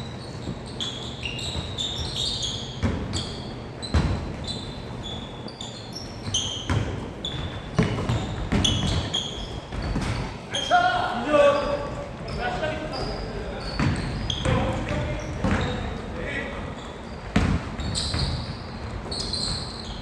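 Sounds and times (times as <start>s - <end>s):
sneakers squeaking on floor: 0.0s - 20.0s
basketball bouncing: 2.8s - 4.4s, 6.2s - 10.4s, 13.0s - 16.0s, 17.0s - 20.0s.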